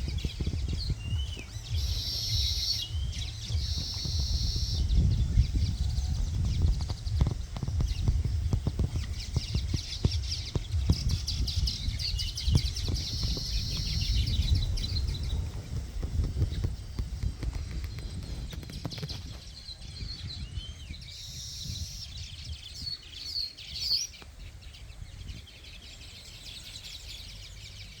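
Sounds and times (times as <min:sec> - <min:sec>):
low rumble: 0:00.0 - 0:21.0
small birds chirping: 0:00.0 - 0:28.0.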